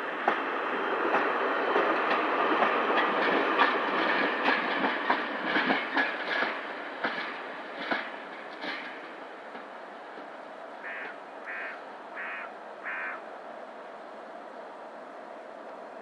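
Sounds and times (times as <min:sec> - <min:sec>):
train wheels clicking over joints: 0:00.1 - 0:10.4.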